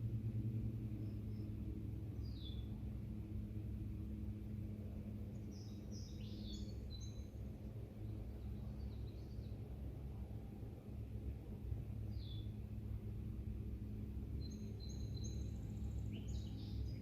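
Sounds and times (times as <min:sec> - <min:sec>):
steady low hum: 0:00.0 - 0:17.0
small birds chirping: 0:00.8 - 0:03.0, 0:05.1 - 0:09.9, 0:11.9 - 0:12.7, 0:14.1 - 0:17.0.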